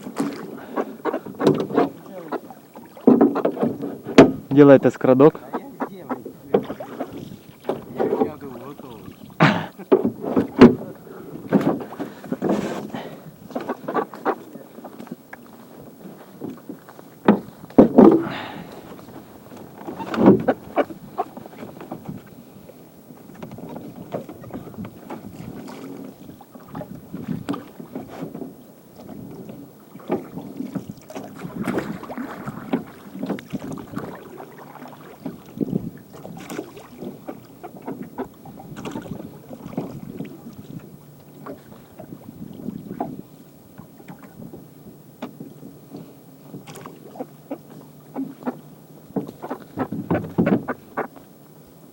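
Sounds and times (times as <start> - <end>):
water splashing: 0.0 - 22.5, 23.3 - 28.3, 29.0 - 44.5
knocks on boat: 1.2 - 2.2, 3.0 - 4.8, 6.2 - 8.6, 9.4 - 13.7, 17.2 - 19.2, 19.8 - 21.0, 49.1 - 50.8.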